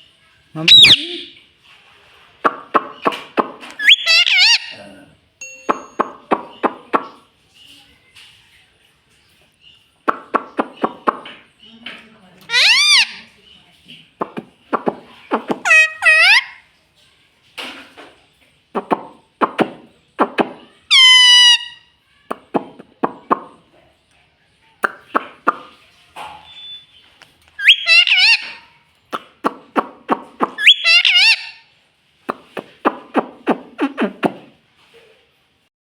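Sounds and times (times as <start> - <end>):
parakeet squawky calls: 0.6 - 1.3, 3.8 - 4.9, 12.5 - 13.4, 15.3 - 16.6, 20.9 - 21.9, 27.6 - 28.7, 30.4 - 31.7
parakeet clicking and chattering: 2.5 - 4.8, 10.0 - 11.4, 12.4 - 13.2, 27.5 - 31.5.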